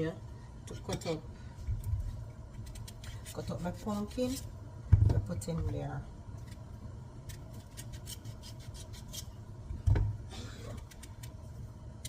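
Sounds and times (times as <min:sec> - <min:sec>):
knife cutting pumpkin: 0:02.6 - 0:04.5, 0:07.3 - 0:09.3.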